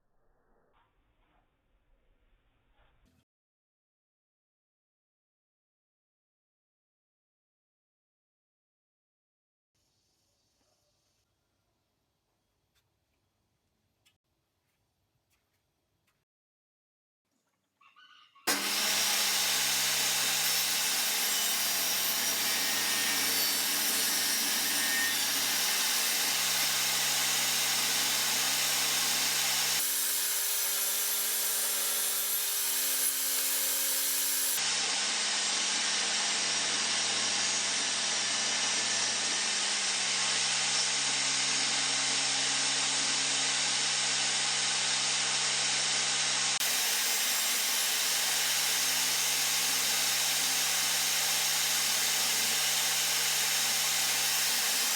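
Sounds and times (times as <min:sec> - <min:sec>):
power tool working on wood: 0:18.5 - 0:54.9.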